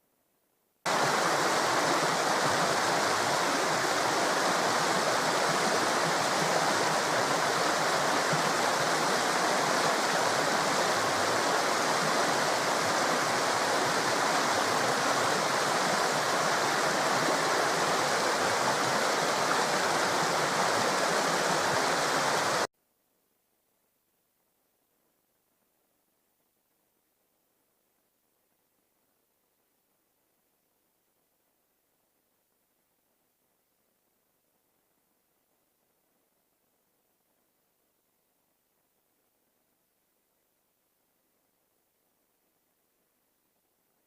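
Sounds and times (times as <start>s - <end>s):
river rushing: 0.9s - 22.7s.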